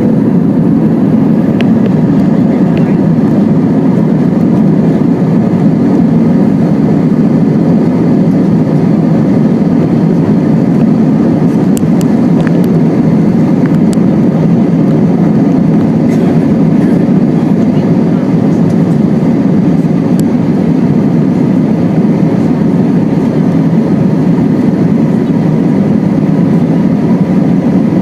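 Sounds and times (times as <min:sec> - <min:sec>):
jet engine and airflow rumble: 0:00.0 - 0:28.0.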